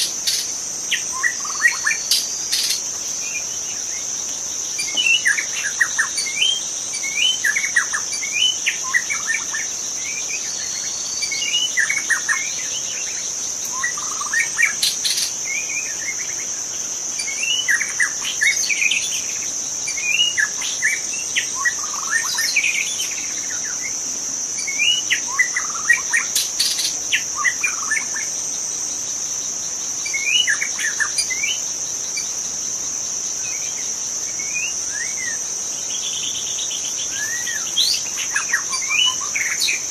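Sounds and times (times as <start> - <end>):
high-pitched insect drone: 0.0 - 39.9
bird singing whistled phrases: 37.2 - 39.8.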